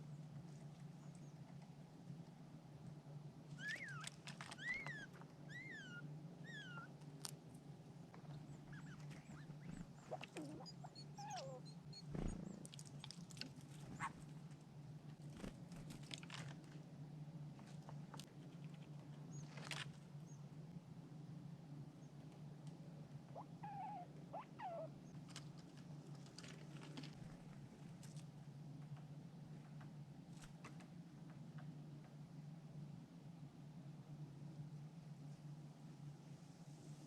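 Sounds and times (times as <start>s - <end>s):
steady low hum: 0.0s - 37.0s
birds calling: 8.3s - 12.7s.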